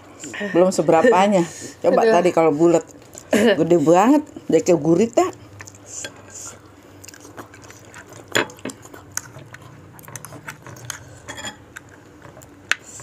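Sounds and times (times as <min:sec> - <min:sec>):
cutlery clinking against a bowl: 0:08.3 - 0:08.8, 0:10.2 - 0:11.6.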